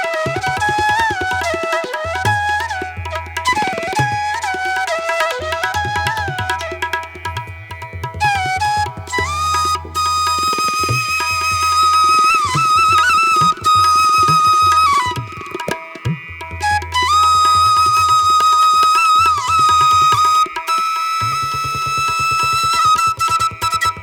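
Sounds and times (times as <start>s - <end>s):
flute-like melody: 0.0s - 24.0s
hand-drum percussion: 0.0s - 24.0s.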